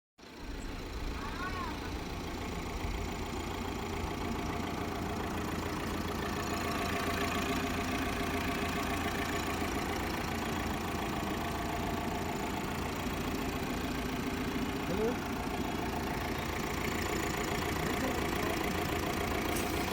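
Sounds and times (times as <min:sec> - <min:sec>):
diesel engine idling: 0:00.2 - 0:19.9.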